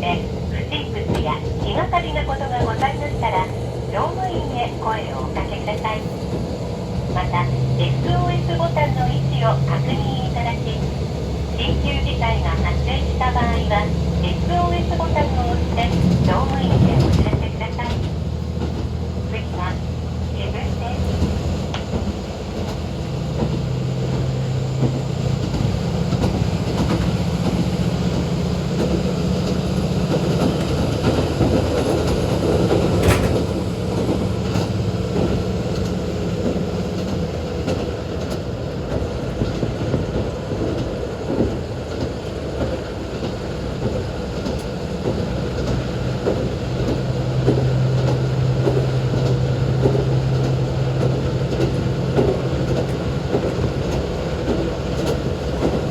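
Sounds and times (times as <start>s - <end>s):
diesel engine droning: 0.0s - 37.1s
train wheels and rail rumble: 0.0s - 55.9s.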